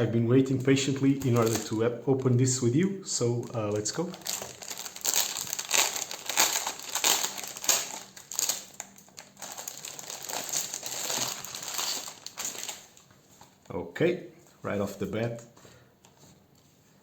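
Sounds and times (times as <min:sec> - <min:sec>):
plastic wrapping crinkling: 0:00.4 - 0:13.7.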